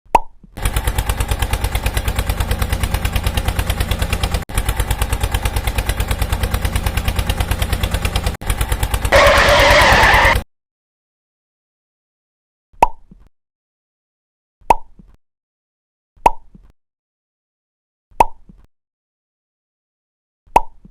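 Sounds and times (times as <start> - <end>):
small engine chugging: 0.6 - 10.4
loud hissing: 9.1 - 10.4.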